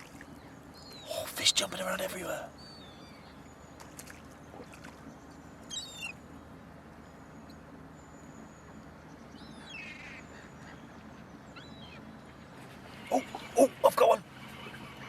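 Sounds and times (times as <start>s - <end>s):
seabirds calling: 0.0s - 15.0s.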